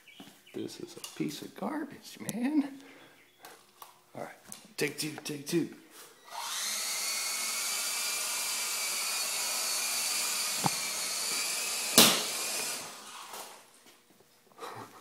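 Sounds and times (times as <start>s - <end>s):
toy helicopter motors whining: 6.2s - 13.7s.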